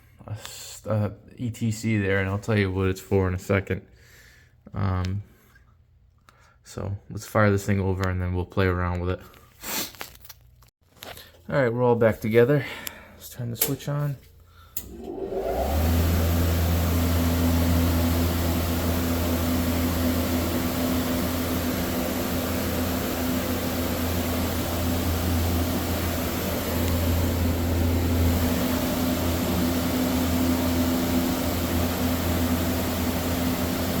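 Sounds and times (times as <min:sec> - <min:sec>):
air blowing: 0:14.8 - 0:34.0
heater motor humming: 0:14.8 - 0:34.0.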